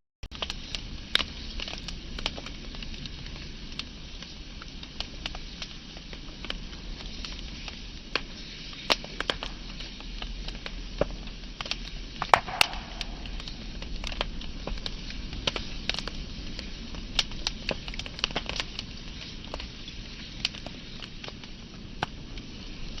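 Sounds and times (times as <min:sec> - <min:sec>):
fire pops and snaps: 0:00.3 - 0:23.0
wood fire crackling: 0:00.3 - 0:23.0.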